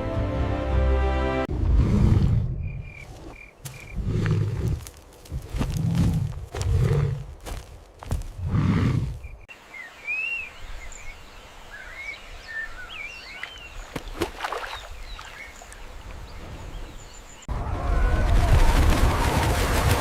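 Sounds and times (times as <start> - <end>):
low outdoor background: 0.0 - 19.0
birds chirping: 2.5 - 17.5.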